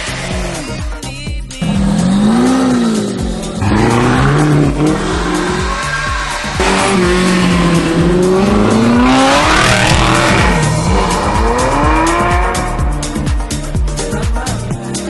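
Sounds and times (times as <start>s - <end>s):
sports car engine revving: 0.0s - 0.8s, 1.6s - 14.1s
background music with steady beat: 0.0s - 15.0s.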